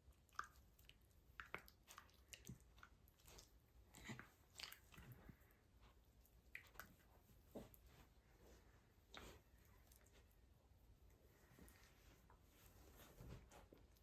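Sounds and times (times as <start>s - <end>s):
dogs mouthing and play-biting: 0.1s - 7.9s.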